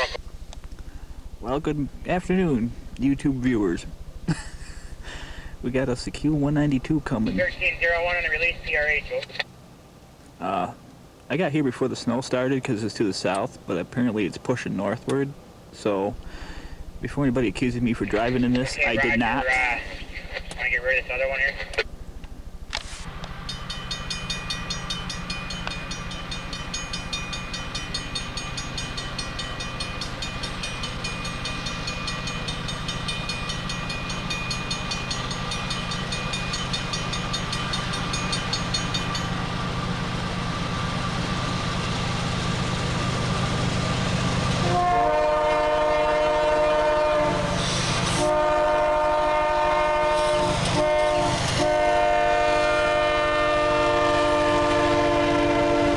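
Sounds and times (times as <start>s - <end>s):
diesel locomotive rumble: 0.0s - 55.9s
fast high ringing: 23.0s - 43.0s
train air horn blasts: 44.6s - 55.9s.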